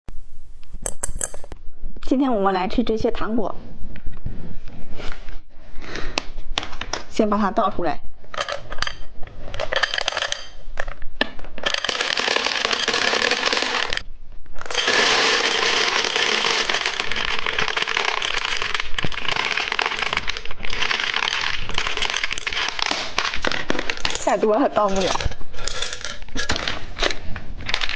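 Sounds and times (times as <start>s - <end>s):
candies rattling in package: 11.6s - 14.0s, 14.7s - 27.9s.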